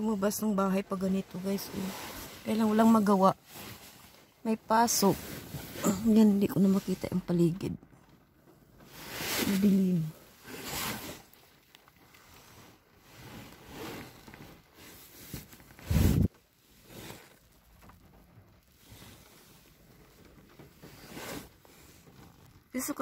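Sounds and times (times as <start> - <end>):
faint rustles: 0.0 - 23.0
rain pattering on a car: 6.3 - 23.0.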